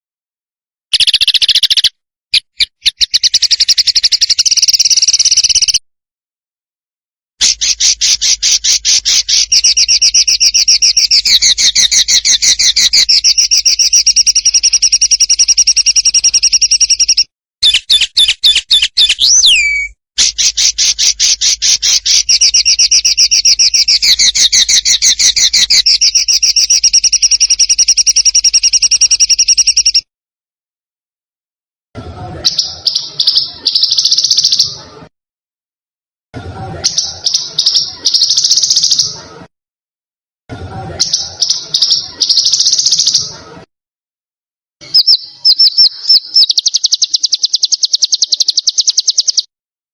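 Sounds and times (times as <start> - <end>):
songbird fast trill: 0.9 - 5.8, 7.4 - 30.1, 44.8 - 49.5
bird swooping whistle: 17.6 - 20.7.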